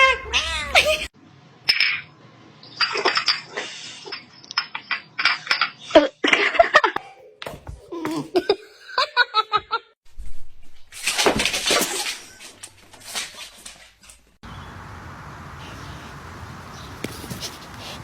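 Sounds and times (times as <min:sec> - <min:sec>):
people laughing: 0:07.9 - 0:09.9.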